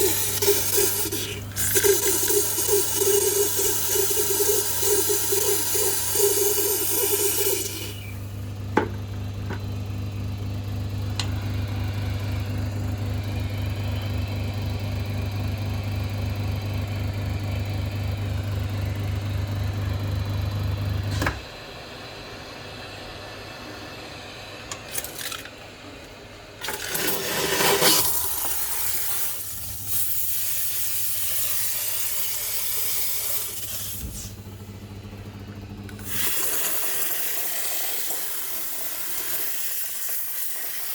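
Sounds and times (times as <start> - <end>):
steam hissing: 0.0 - 8.2, 27.6 - 34.4, 36.0 - 40.9
steam cleaner pump buzzing: 0.0 - 25.3, 26.6 - 40.9.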